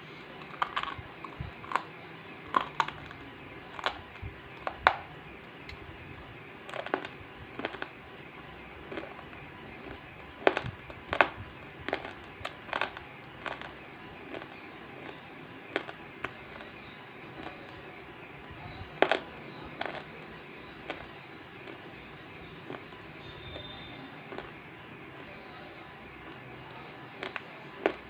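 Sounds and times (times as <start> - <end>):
clay crackling: 0.0 - 18.0.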